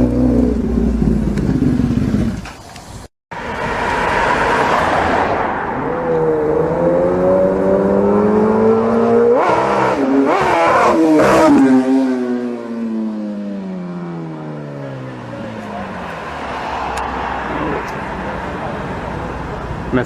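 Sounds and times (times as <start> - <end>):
motorbike engine revving: 0.0 - 2.4, 5.7 - 14.6.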